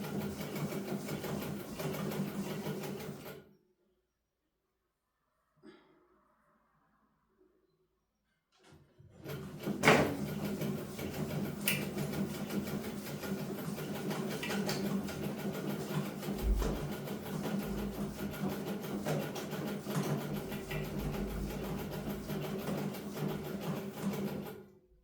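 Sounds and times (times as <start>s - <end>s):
sewing machine stitching: 0.0s - 3.5s, 9.0s - 24.7s.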